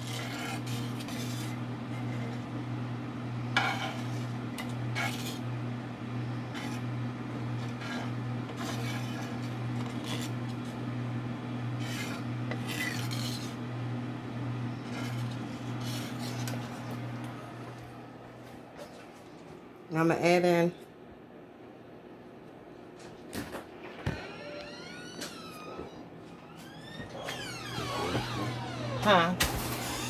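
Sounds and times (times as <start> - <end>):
utensil scraping pan: 0.0 - 2.5, 3.4 - 5.5, 6.2 - 10.6, 11.7 - 13.6, 14.7 - 17.0.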